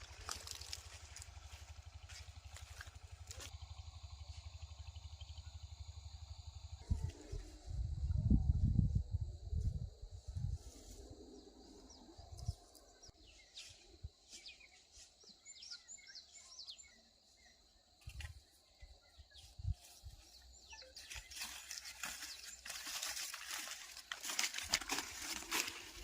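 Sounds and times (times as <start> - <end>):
small birds chirping: 0.0 - 7.4, 11.3 - 26.0
rustling: 21.0 - 26.0.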